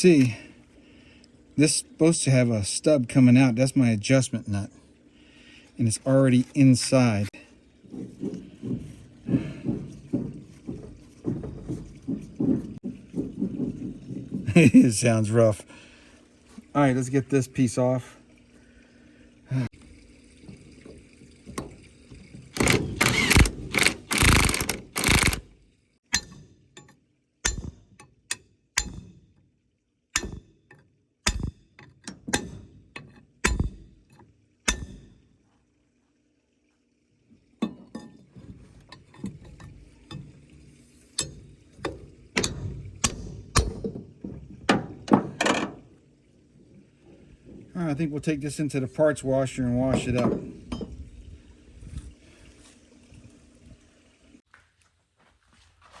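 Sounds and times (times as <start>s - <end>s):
metal parts clanking: 22.6s - 25.4s.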